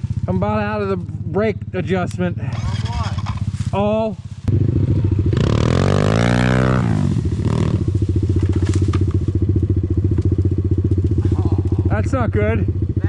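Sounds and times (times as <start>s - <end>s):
dirt bike engine revving and idling: 0.0s - 13.0s.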